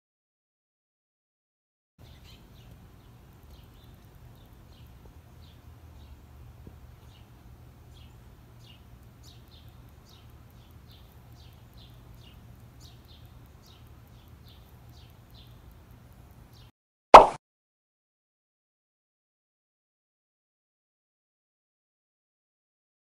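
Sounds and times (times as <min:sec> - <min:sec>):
faint bird chirping: 0:02.0 - 0:16.7
low outdoor rumble: 0:02.0 - 0:16.7.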